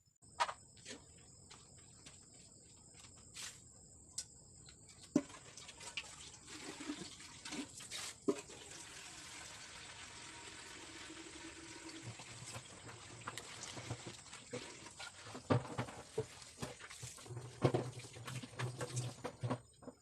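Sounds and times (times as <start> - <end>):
water running: 5.1 - 19.6.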